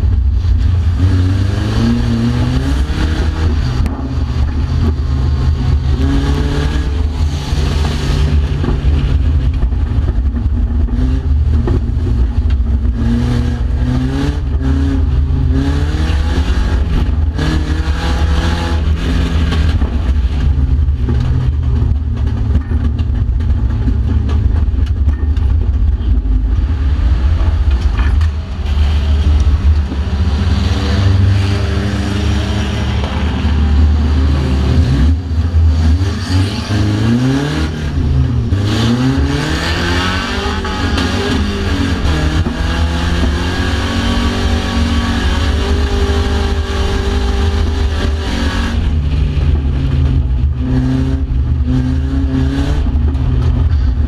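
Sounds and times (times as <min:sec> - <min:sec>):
car engine revving: 0:00.0 - 0:54.0
knocks and rattles: 0:03.2 - 0:13.1, 0:18.8 - 0:30.4.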